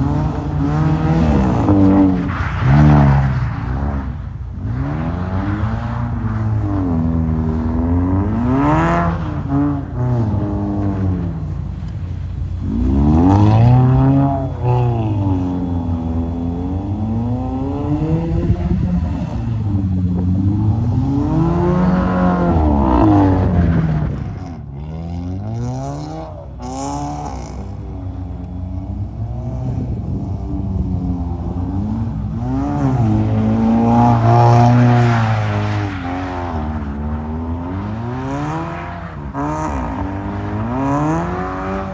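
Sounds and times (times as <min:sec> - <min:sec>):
car engine revving: 0:00.0 - 0:41.9.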